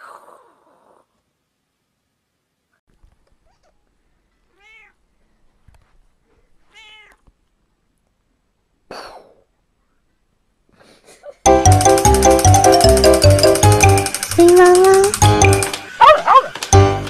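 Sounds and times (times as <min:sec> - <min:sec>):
cat meowing: 0:04.5 - 0:05.0, 0:06.7 - 0:07.3.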